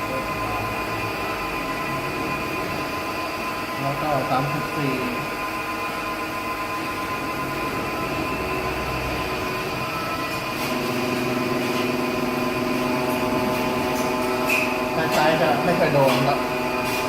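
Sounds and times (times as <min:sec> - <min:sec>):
lathe machine whine: 0:00.0 - 0:17.0.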